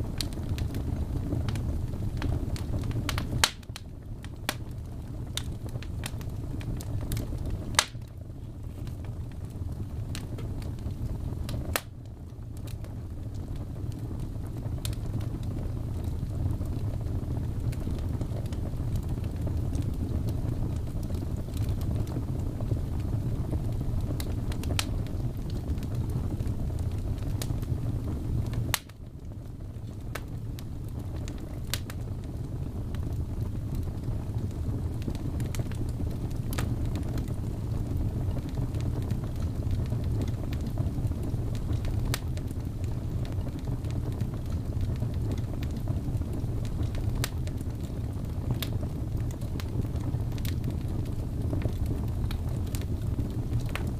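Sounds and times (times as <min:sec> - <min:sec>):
fire popping and snapping: 0:00.0 - 0:53.9
low rumble of burning fire: 0:00.0 - 0:53.9.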